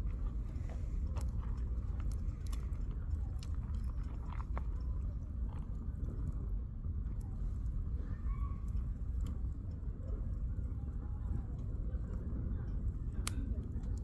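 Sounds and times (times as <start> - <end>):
low fire rumble: 0.0 - 14.0.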